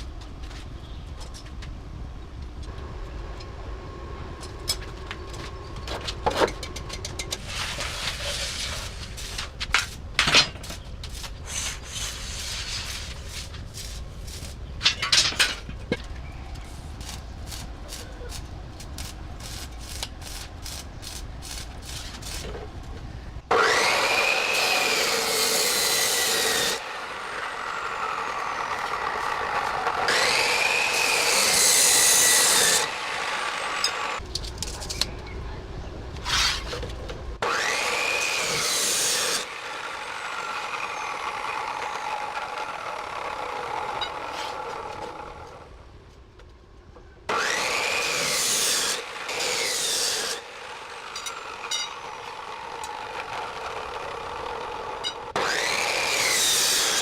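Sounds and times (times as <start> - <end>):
power tool whine: 23.5 - 34.2, 37.4 - 45.6, 47.3 - 57.0.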